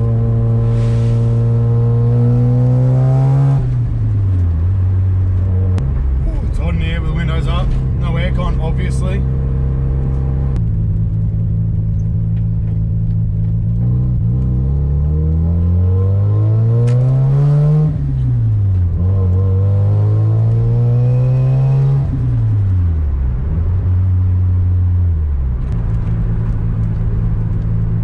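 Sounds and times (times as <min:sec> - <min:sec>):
rotary car engine revving: 0:00.0 - 0:04.6, 0:12.6 - 0:24.9.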